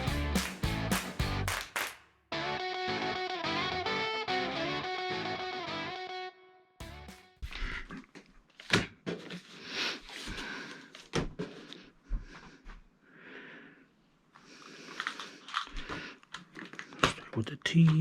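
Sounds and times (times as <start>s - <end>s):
rustling and scraping: 7.4s - 12.6s.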